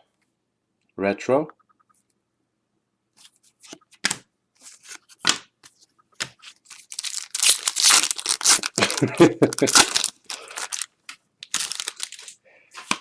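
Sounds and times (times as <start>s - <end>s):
paper cards rustling: 3.2s - 13.0s.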